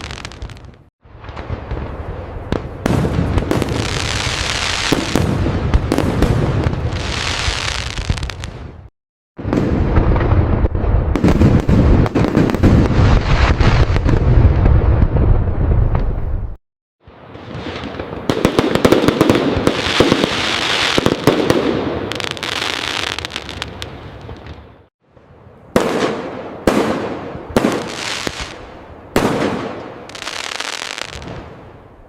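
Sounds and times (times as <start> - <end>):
fireworks cracking bangs: 0.0 - 24.9, 25.7 - 31.8
sharp firework bursts: 2.8 - 10.4, 17.5 - 24.6, 25.8 - 31.5.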